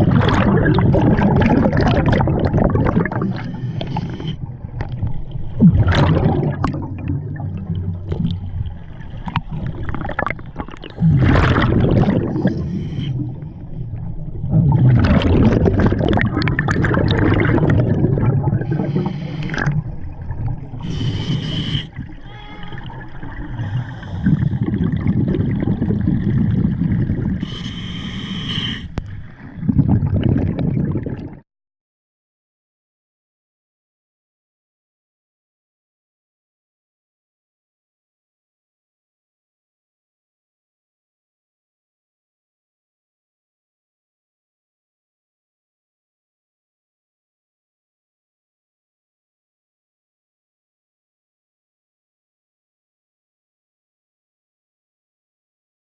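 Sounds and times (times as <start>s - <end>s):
exhaled bubbles gurgling underwater: 0.0s - 31.4s
hissing regulator inhalations: 3.3s - 4.4s, 12.5s - 13.2s, 18.7s - 19.7s, 20.8s - 22.0s, 23.6s - 24.6s, 27.4s - 29.1s.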